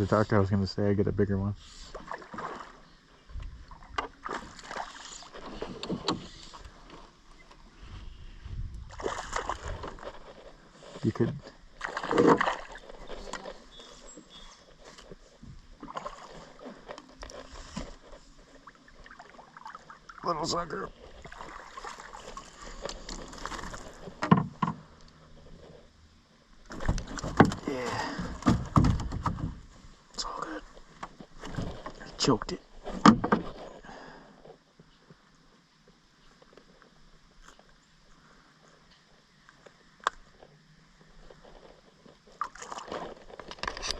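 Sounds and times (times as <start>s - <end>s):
water splashing against canoe: 1.7s - 7.7s, 8.9s - 25.5s, 26.6s - 34.6s, 41.6s - 43.9s
wind rumble on microphone: 3.3s - 3.9s, 7.8s - 10.1s
sharp knocks against canoe: 24.2s - 24.8s, 26.7s - 29.6s, 32.9s - 33.6s.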